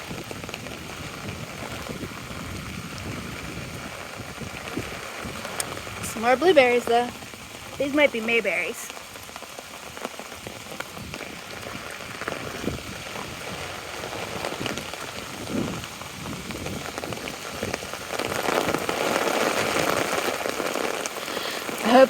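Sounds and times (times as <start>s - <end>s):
raindrops ticking: 0.0s - 22.0s
steady rain falling: 0.0s - 22.0s.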